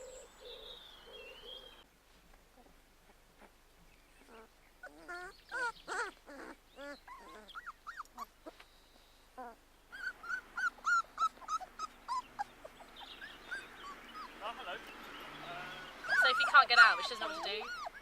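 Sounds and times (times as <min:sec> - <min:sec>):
puppies whimpering and squealing: 0:04.2 - 0:08.6, 0:09.4 - 0:18.0.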